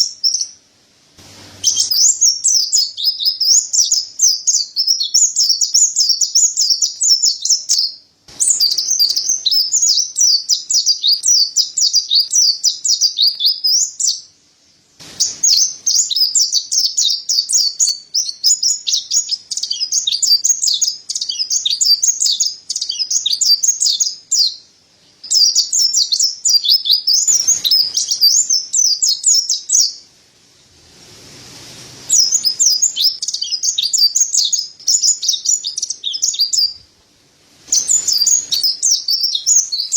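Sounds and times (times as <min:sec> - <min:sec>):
bird singing rapid high twitter: 0:00.0 - 0:00.6, 0:01.6 - 0:14.3, 0:15.0 - 0:24.6, 0:25.2 - 0:30.0, 0:32.1 - 0:36.8, 0:37.7 - 0:39.9
faint rush of noise: 0:00.6 - 0:03.0, 0:14.4 - 0:16.5, 0:27.3 - 0:33.3, 0:36.5 - 0:39.0.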